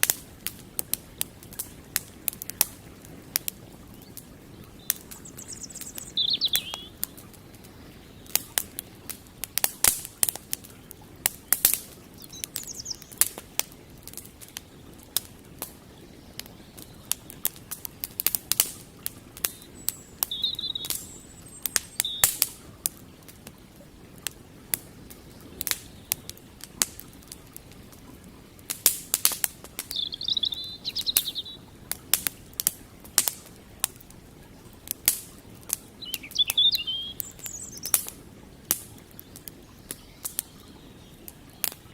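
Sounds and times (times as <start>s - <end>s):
campfire crackling and popping: 0.0s - 41.9s
small bird chirping: 4.0s - 8.5s, 12.2s - 13.2s, 19.4s - 22.4s, 29.8s - 31.7s, 36.0s - 38.1s
river water rushing: 16.4s - 41.9s.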